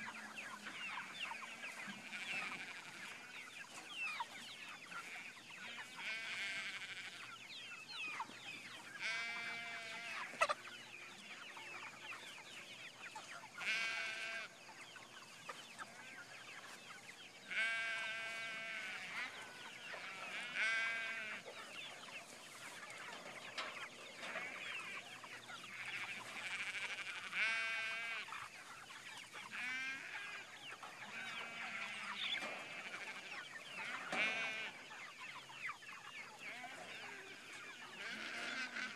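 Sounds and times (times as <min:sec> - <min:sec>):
chickens clucking and calling: 0:00.0 - 0:38.9.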